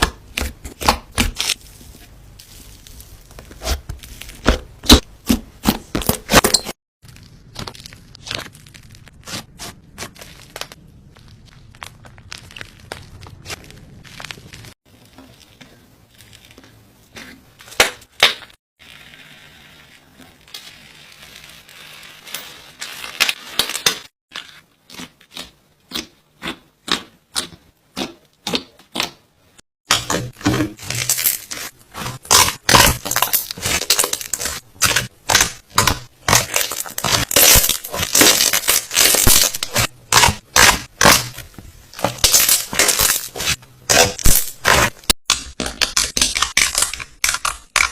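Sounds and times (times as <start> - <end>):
slime crackling and popping: 7.0 - 16.6, 30.8 - 47.9.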